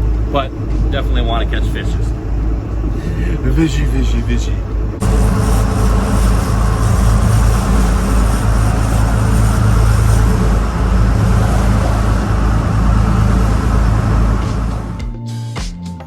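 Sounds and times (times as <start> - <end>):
boat engine drone: 0.0 - 15.1
wind and water hiss: 5.0 - 15.0.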